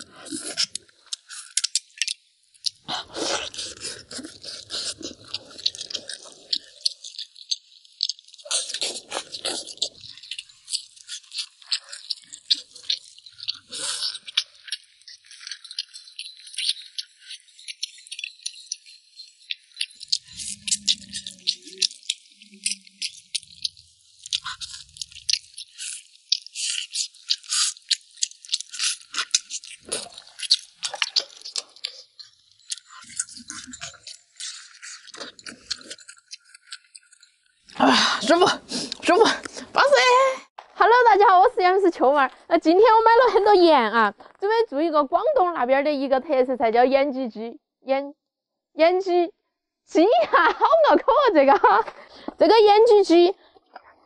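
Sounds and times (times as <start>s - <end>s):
chewing and gnawing ribs: 0.0s - 40.2s.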